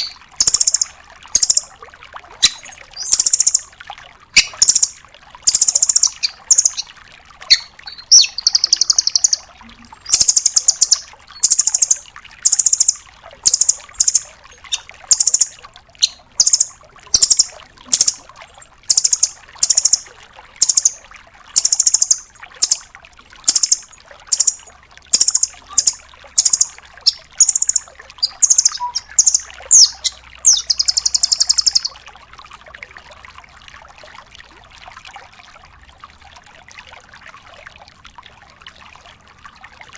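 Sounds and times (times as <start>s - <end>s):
bird rapid trilled calls: 0.0s - 1.7s, 2.4s - 3.7s, 4.4s - 6.9s, 7.5s - 18.2s, 18.9s - 21.0s, 21.6s - 32.0s.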